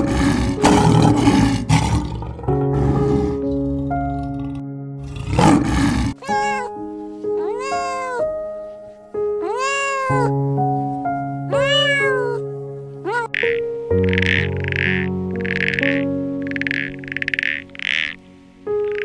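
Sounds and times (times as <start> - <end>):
rough roar-like burst: 0.0 - 3.6, 4.2 - 6.2
background music with sustained notes: 0.0 - 19.0
meow-like animal calls: 6.2 - 6.8, 7.4 - 8.4, 9.4 - 10.4, 11.5 - 14.9.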